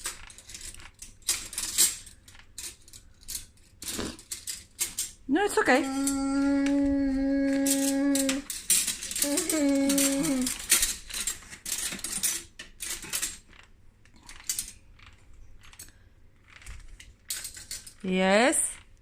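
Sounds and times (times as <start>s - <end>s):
person humming: 5.4s - 8.5s, 9.1s - 10.7s
metal cutlery clinking: 7.6s - 13.5s.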